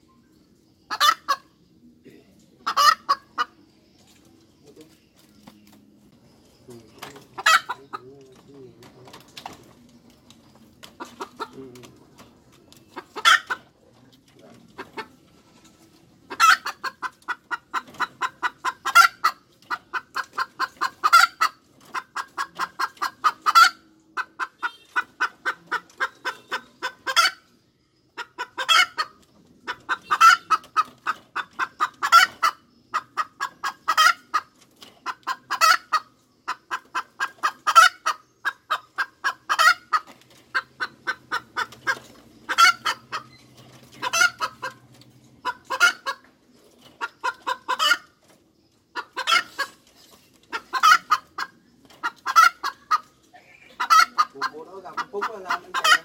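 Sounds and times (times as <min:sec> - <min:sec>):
hen clucking: 0:00.0 - 0:56.0
hen squawking: 0:50.5 - 0:56.0.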